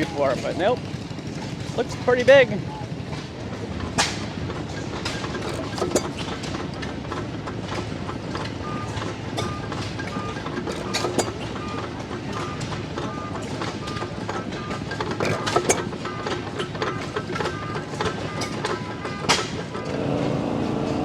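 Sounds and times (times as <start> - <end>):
old engines rumbling: 0.0 - 21.0
clicks and knocks: 3.9 - 19.9
short high beep: 8.6 - 19.6.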